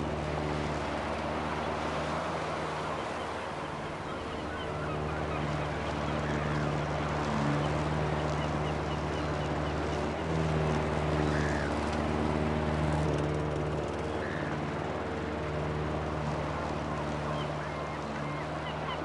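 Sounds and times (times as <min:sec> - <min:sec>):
lawn mower engine running: 0:05.0 - 0:18.6.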